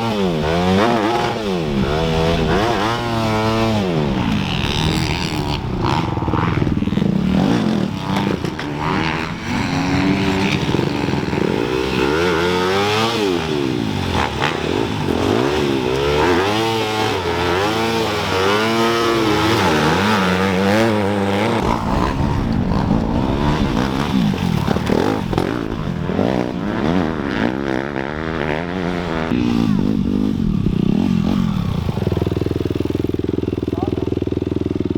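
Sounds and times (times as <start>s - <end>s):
dirt bike engines revving: 0.0s - 34.9s.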